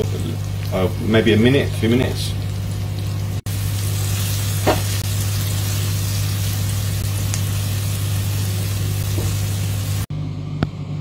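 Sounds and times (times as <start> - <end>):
omelette sizzling in a frying pan: 2.8 - 10.1.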